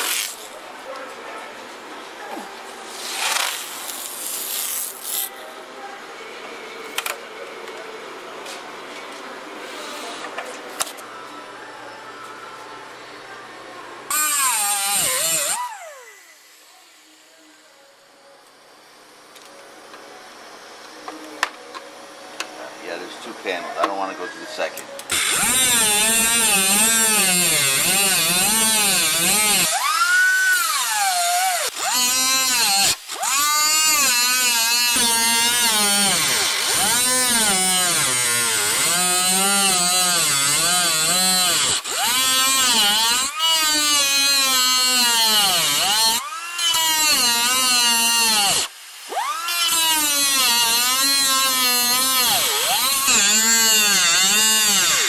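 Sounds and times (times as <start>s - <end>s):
power drill drilling sheet metal: 14.1s - 17.5s, 25.1s - 55.0s.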